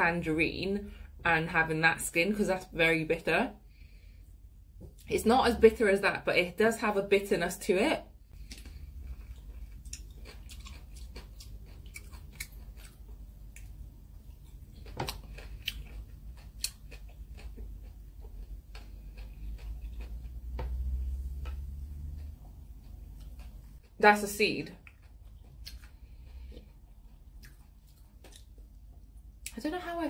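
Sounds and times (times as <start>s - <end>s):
low steady hum: 0.0s - 30.0s
person chewing fruit: 8.3s - 24.0s, 24.7s - 29.5s.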